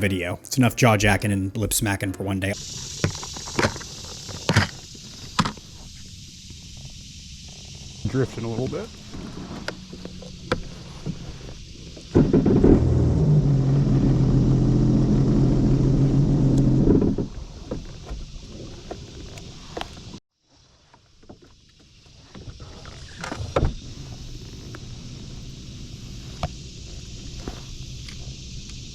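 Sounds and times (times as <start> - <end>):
boat engine idling: 2.6 - 19.6.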